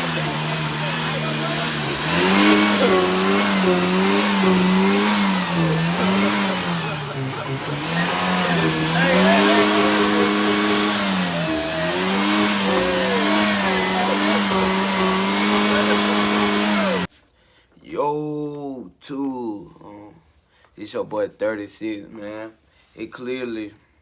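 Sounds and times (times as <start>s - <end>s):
car engine revving: 0.0s - 17.1s.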